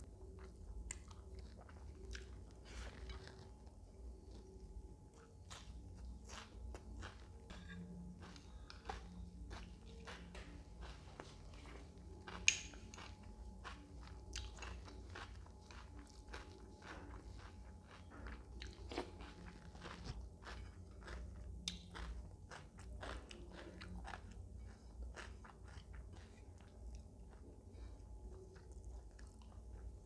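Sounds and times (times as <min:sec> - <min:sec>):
chewing and crunching food: 0:00.0 - 0:30.0.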